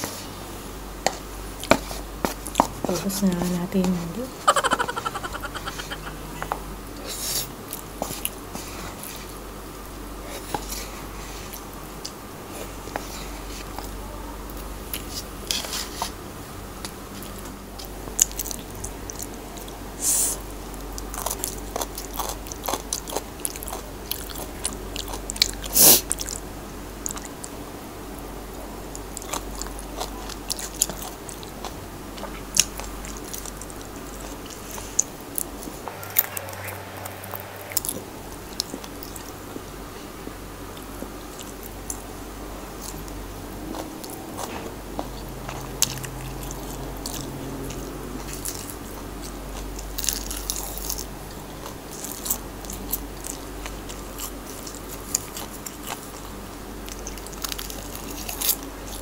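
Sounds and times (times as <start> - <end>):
person chewing food: 16.8 - 26.4, 27.0 - 27.6, 28.9 - 35.8, 42.8 - 59.0.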